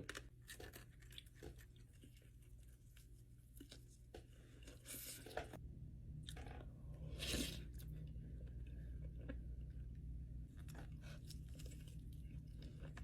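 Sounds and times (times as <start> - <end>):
person chewing crispy chicken: 6.2 - 13.0.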